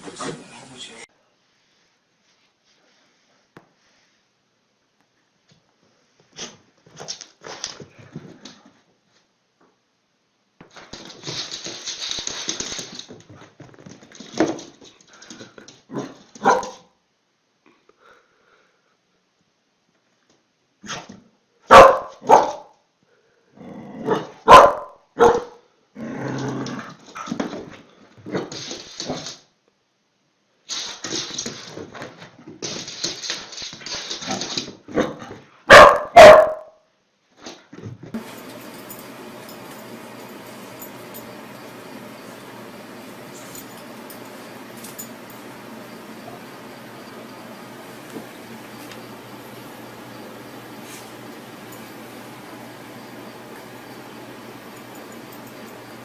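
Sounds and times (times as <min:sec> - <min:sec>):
dog barking: 0:16.4 - 0:16.9, 0:21.7 - 0:22.7, 0:24.0 - 0:25.6, 0:35.7 - 0:36.8.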